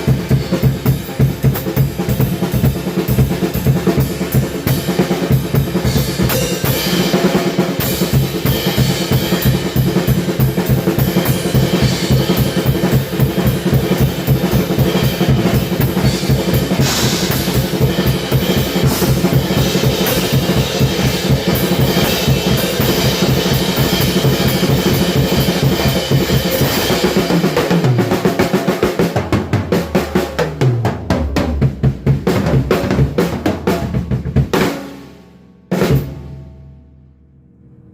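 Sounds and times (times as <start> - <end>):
fast drum kit playing: 0.0 - 36.8
tom strokes: 16.8 - 17.7.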